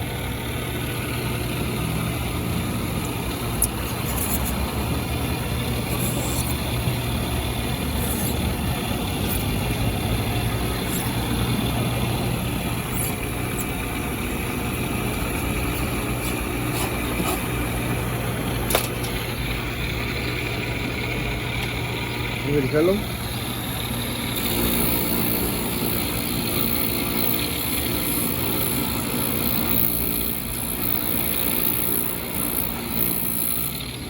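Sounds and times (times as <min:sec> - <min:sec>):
low mechanical hum: 0:00.0 - 0:34.0
rubber being trimmed: 0:03.4 - 0:09.9, 0:10.6 - 0:11.9, 0:12.8 - 0:13.9, 0:15.6 - 0:17.6, 0:24.3 - 0:34.0.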